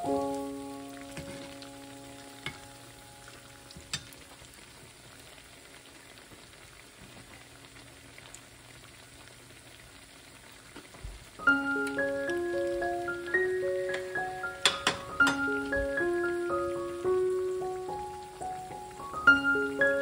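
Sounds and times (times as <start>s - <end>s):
food deep-frying in oil: 0.0s - 20.0s
metal utensil clicking on pot: 14.6s - 15.4s.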